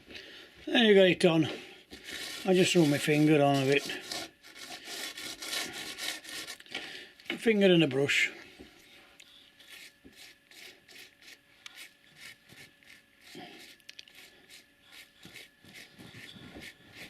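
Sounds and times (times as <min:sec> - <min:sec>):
granules brushed by hand: 0:01.9 - 0:06.6, 0:09.6 - 0:17.0.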